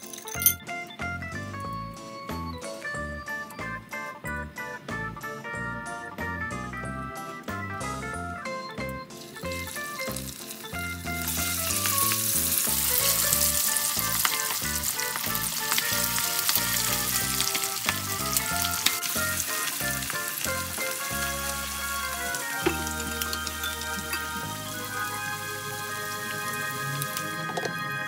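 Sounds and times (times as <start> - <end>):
background music: 0.0 - 28.0
chicken sizzling in hot oil: 9.1 - 28.0.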